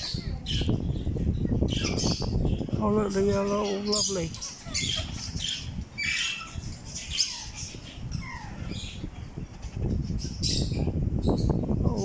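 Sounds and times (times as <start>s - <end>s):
parrots squawking: 3.3s - 9.1s.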